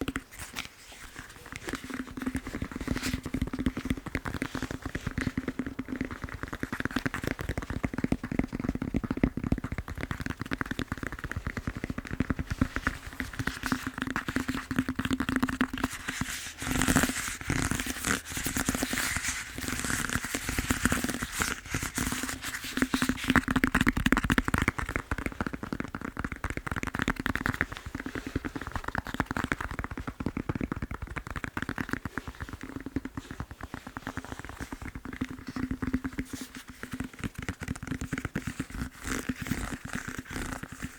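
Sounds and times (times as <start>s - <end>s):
fingertip tapping on foam roller: 0.0s - 40.9s.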